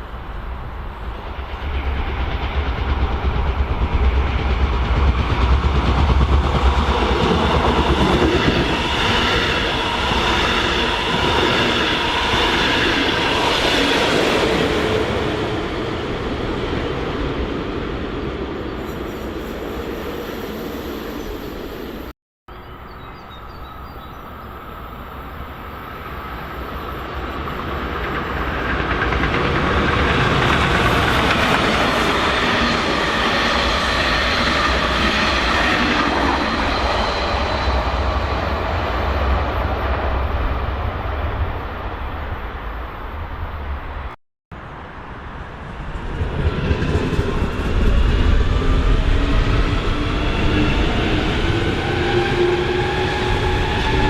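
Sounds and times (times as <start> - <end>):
train approaching: 0.0 - 54.0
train passing: 0.0 - 54.0.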